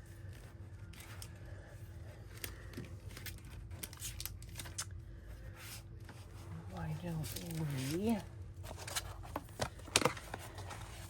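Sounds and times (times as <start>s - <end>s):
steady low hum: 0.0s - 11.0s
paper rustling: 5.5s - 11.0s.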